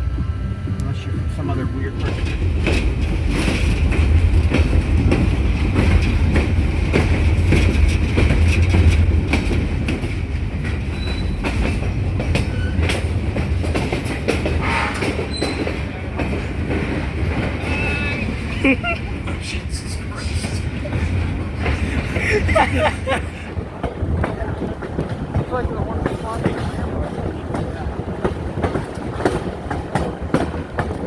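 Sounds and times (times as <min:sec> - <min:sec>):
train rumbling on track: 0:00.0 - 0:31.0
wheels clicking over rail joints: 0:01.8 - 0:31.0
wheels squealing: 0:10.9 - 0:11.8, 0:14.5 - 0:24.6.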